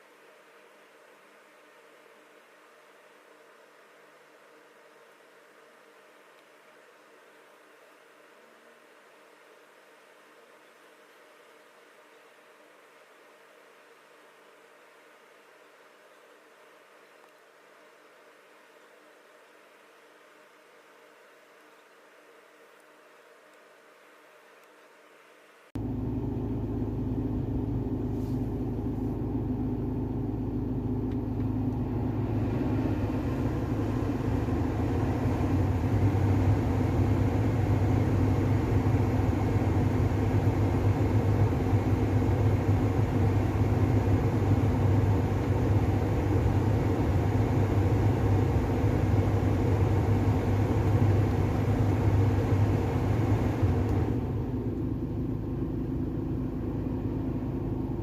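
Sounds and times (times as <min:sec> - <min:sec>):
diesel engine running: 0:25.8 - 0:58.0.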